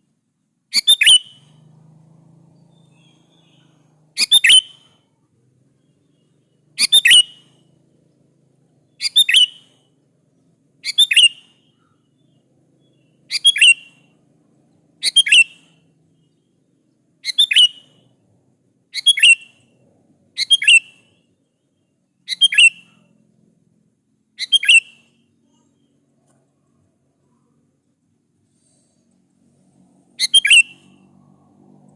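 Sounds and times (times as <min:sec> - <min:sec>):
bird calling slurred notes: 0:00.7 - 0:01.6, 0:02.6 - 0:05.0, 0:05.8 - 0:07.8, 0:08.8 - 0:10.0, 0:10.8 - 0:14.2, 0:15.0 - 0:16.5, 0:17.2 - 0:18.1, 0:18.9 - 0:19.7, 0:20.4 - 0:23.1, 0:24.4 - 0:26.0, 0:30.1 - 0:31.6.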